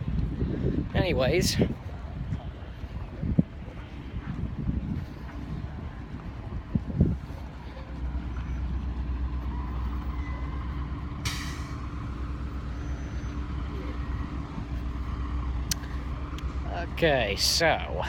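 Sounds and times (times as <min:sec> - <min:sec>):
bus engine rumbling: 0:00.0 - 0:18.0
air brake hiss: 0:11.2 - 0:11.9.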